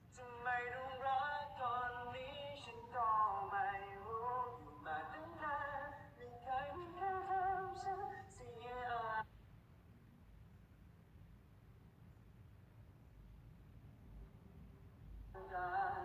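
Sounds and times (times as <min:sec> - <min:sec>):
person singing with vibrato: 0:00.1 - 0:09.2, 0:15.4 - 0:16.0.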